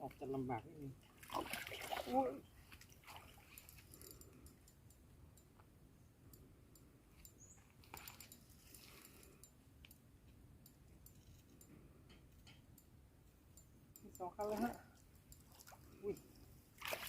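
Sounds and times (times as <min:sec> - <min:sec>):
faint clicks: 0:06.3 - 0:16.3.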